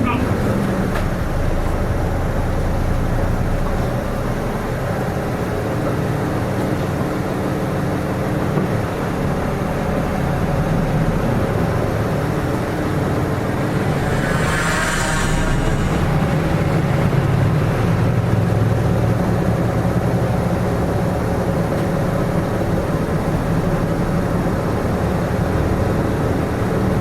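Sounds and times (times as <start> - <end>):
bus diesel engine running: 0.0 - 27.0
brief hiss: 13.6 - 16.7.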